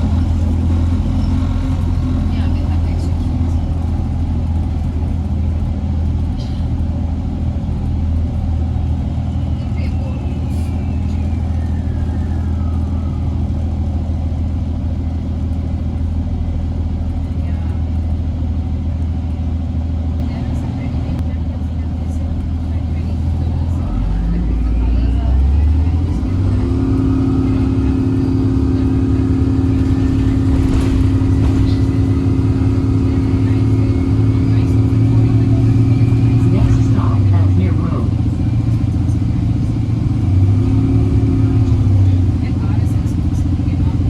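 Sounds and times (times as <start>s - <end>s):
bus drivetrain drone: 0.0s - 44.0s
road noise: 0.0s - 44.0s.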